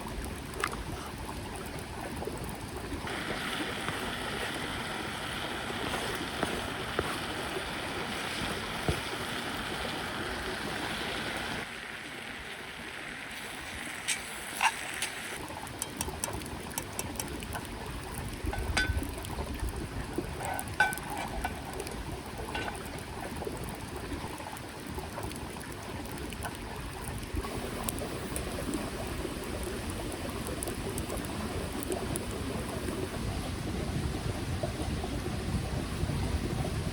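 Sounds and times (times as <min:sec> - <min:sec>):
mountain creek flowing: 0:00.0 - 0:36.8.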